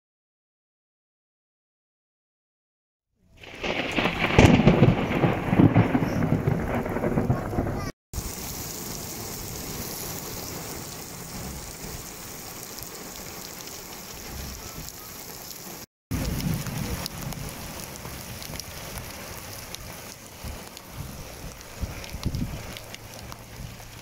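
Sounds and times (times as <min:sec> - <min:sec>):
heavy rain on puddles: 0:03.4 - 0:24.0.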